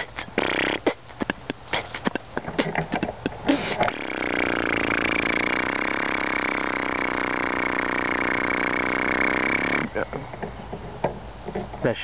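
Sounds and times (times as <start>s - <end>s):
motor-like drone: 3.9s - 10.2s.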